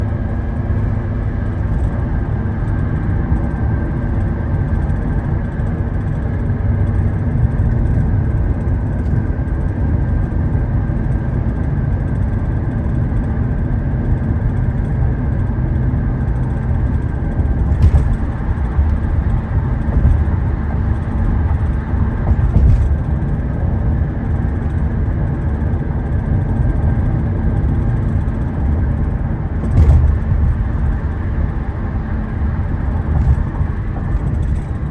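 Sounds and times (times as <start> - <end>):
car road and engine rumble: 0.0 - 34.9
car bumps and knocks: 17.0 - 23.3, 29.6 - 31.2, 33.0 - 34.9.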